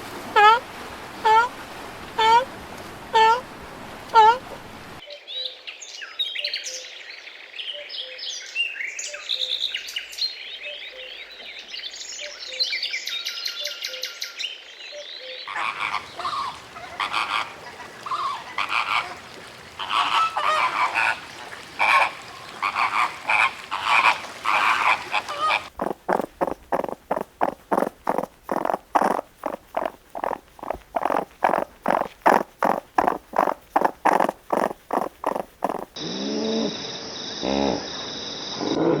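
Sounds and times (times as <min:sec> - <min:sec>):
fast croak-like pulses: 0:21.8 - 0:36.0
high chirping animal calls: 0:21.8 - 0:36.0
broad pulsed animal calls: 0:22.6 - 0:36.0.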